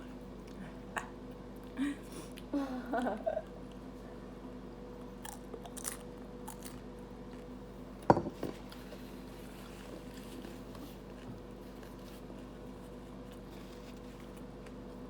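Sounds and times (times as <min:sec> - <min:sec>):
steady low hum: 0:00.0 - 0:15.0
chewing and crunching food: 0:04.8 - 0:15.0.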